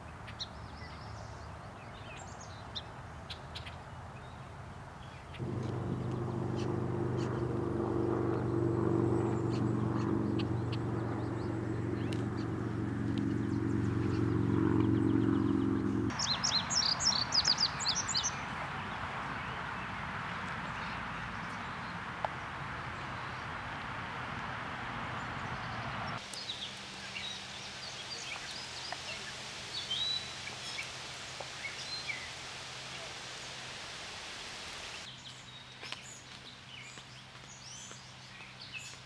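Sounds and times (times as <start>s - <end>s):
bird chirping: 5.0s - 18.5s, 25.2s - 33.6s
low hum of held pitches: 5.4s - 16.1s
steady hiss: 26.2s - 35.1s.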